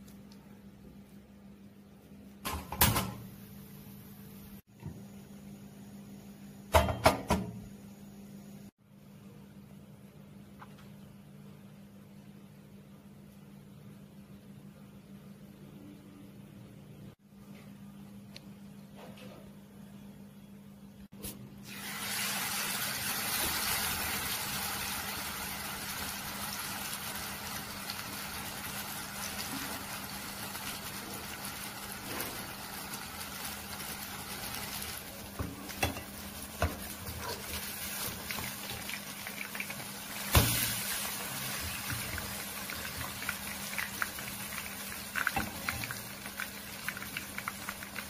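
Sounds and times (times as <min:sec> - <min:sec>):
chicken sizzling in hot oil: 0:21.6 - 0:48.0.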